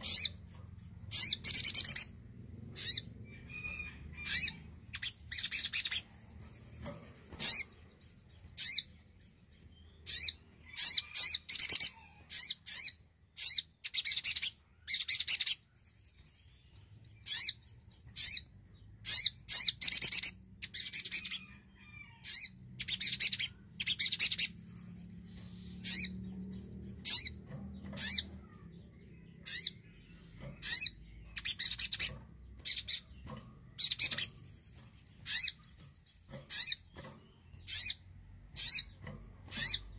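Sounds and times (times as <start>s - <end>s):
buzzing high bird trills: 0.0s - 6.1s, 19.1s - 37.0s, 37.6s - 39.9s
bird chirping sharply: 0.0s - 39.9s.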